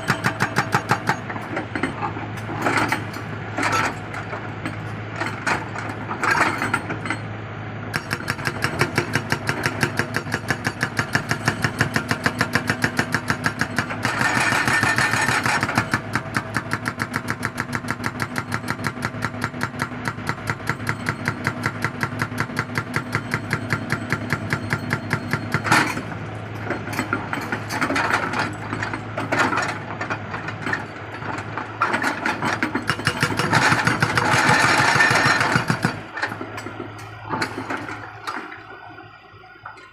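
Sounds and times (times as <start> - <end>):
hydraulic rock breaker hammering: 0.0 - 2.0, 7.9 - 38.0
diesel engine running: 0.0 - 39.9.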